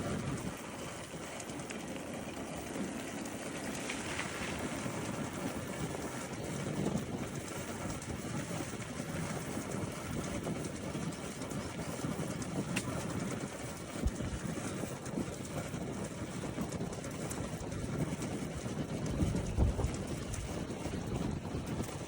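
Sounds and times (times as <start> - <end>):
motorcycle road noise: 0.0 - 10.3, 15.8 - 22.0
rushing wind: 0.0 - 22.0
wind buffeting microphone: 0.0 - 22.0.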